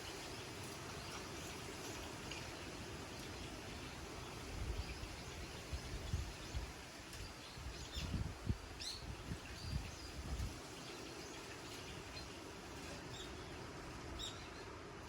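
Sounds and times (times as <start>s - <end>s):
steady outdoor hiss: 0.0s - 15.0s
wind gusting against microphone: 4.2s - 11.5s.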